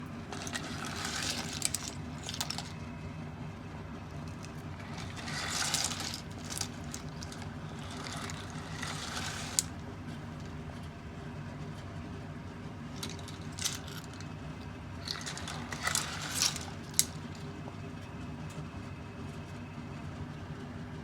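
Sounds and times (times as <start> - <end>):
clam shells rattling and scraping: 0.2 - 2.8, 4.3 - 10.7, 12.8 - 17.5.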